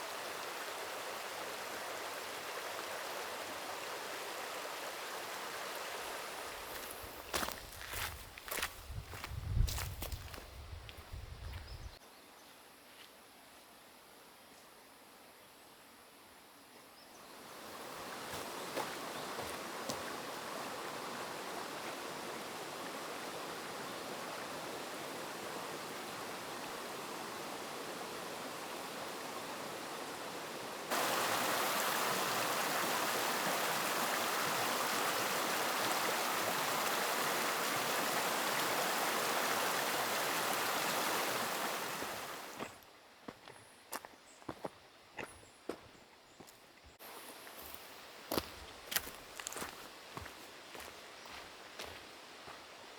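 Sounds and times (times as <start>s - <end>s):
river water rushing: 0.0s - 7.4s, 17.3s - 42.7s.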